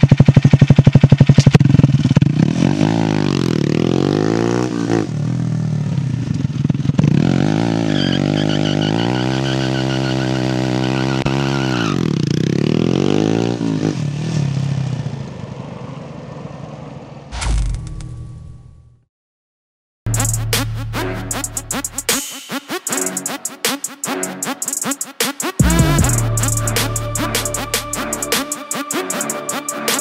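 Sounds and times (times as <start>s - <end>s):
motorcycle engine revving: 0.0s - 18.0s, 25.6s - 30.0s.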